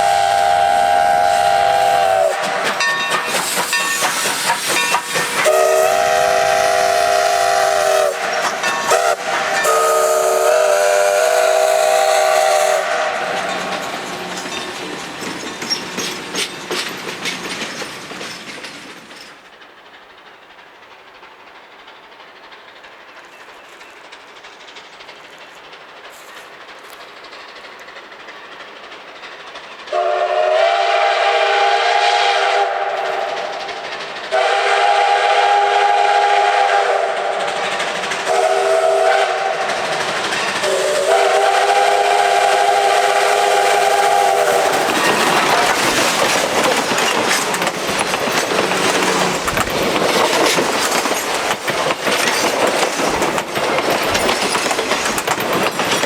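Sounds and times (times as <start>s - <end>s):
steam whistle chord: 0.0s - 2.9s, 4.9s - 14.4s, 29.9s - 33.3s, 34.3s - 37.4s, 38.3s - 39.7s, 40.6s - 44.8s
train rolling past: 0.0s - 56.0s.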